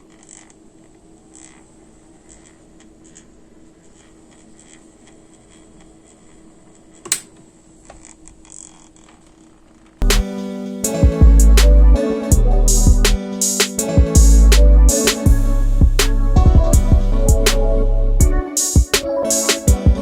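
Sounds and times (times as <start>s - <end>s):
sharp click: 7.0s - 7.5s
background music: 10.0s - 20.0s.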